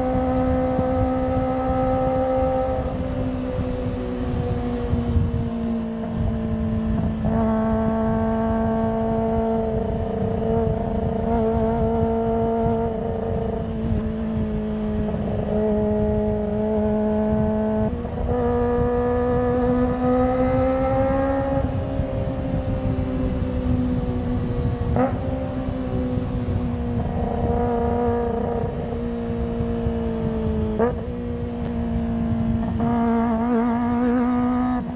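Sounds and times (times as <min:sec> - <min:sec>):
motorcycle engine at high revs: 0:00.0 - 0:34.9.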